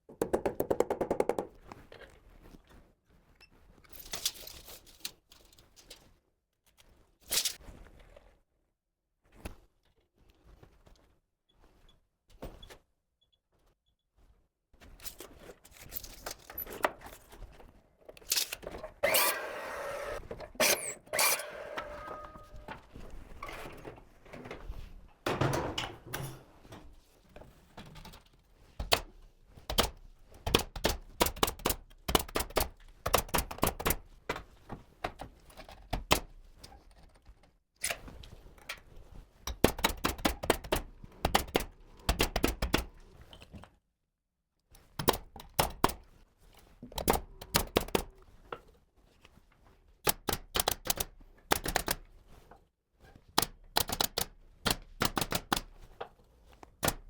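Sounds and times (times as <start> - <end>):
nail gun shots into wood: 53.4 - 55.7.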